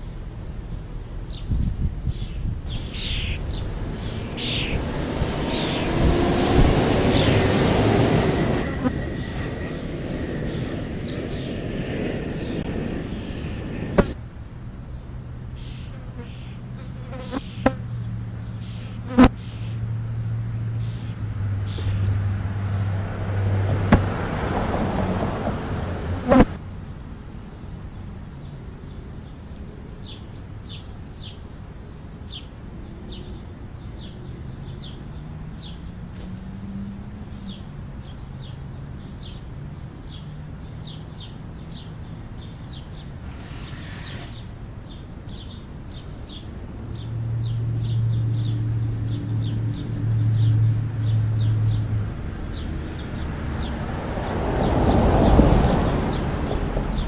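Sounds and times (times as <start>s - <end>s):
sharp knocks: 14.0s - 14.2s, 23.7s - 24.2s
quick short bird chirps: 42.9s - 45.0s.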